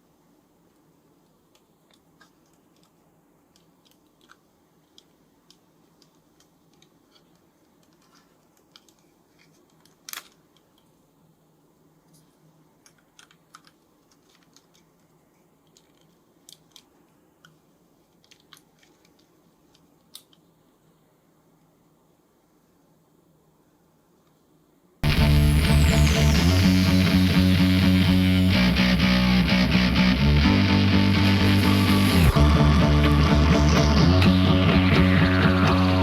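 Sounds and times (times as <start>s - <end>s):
small plastic clicks and taps: 1.5s - 10.9s, 12.1s - 15.1s.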